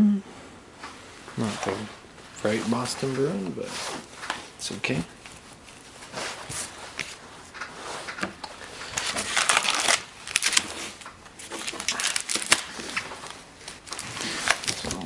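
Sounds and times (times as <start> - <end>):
cards rustling by hand: 4.3 - 15.0.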